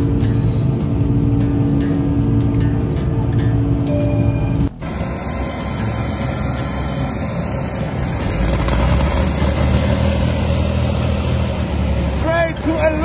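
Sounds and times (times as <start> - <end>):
music: 0.0 - 13.0
jet engines running: 4.8 - 13.0.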